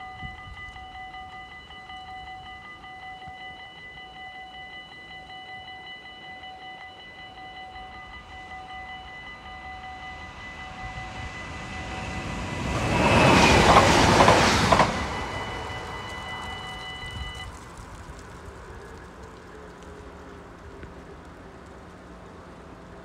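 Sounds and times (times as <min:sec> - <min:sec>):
level crossing bell ringing: 0:00.0 - 0:17.5
passenger train passing: 0:00.0 - 0:23.0.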